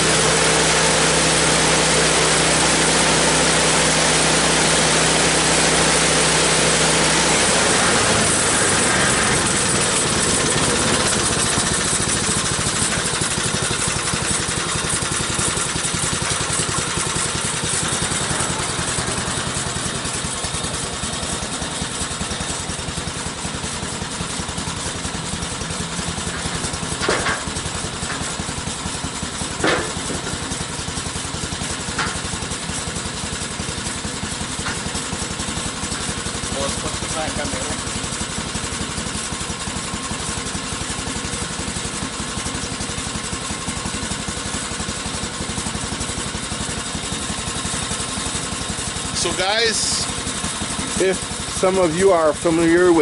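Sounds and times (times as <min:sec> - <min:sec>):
sawmill engine running: 0:00.0 - 0:53.0.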